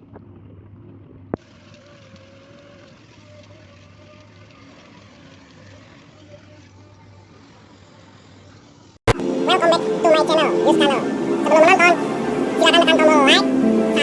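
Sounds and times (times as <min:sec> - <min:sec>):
excavator engine running: 0:09.1 - 0:14.0.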